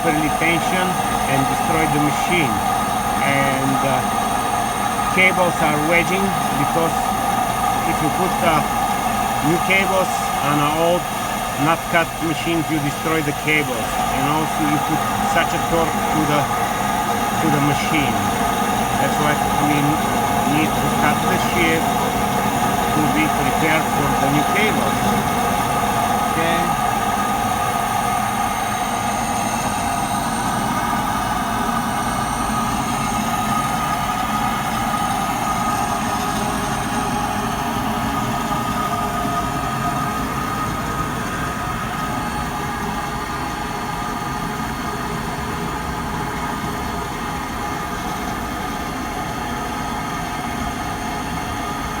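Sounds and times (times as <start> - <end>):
machinery running with rumble: 0.0 - 52.0.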